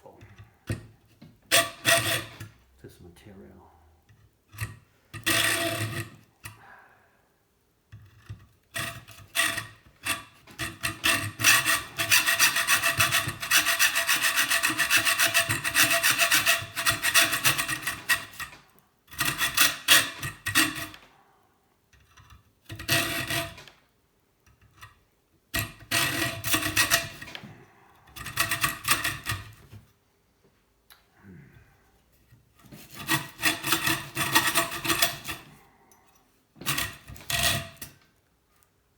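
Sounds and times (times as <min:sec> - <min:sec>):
saw cutting metal tube: 0:01.5 - 0:02.5, 0:05.2 - 0:06.2, 0:08.8 - 0:21.0, 0:22.7 - 0:23.6, 0:25.6 - 0:27.4, 0:28.1 - 0:29.6, 0:32.7 - 0:35.6, 0:36.6 - 0:38.0.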